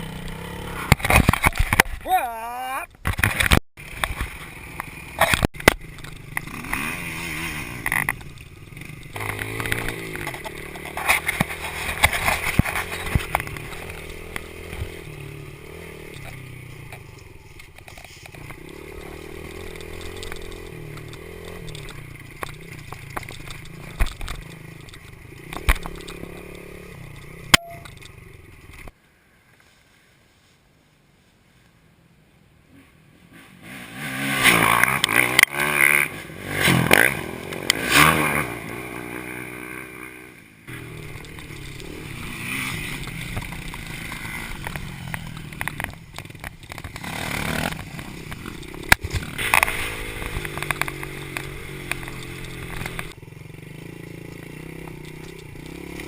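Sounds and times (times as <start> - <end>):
dirt bike engine revving: 0.0 - 1.7, 3.2 - 17.0, 18.4 - 27.9, 33.3 - 56.0.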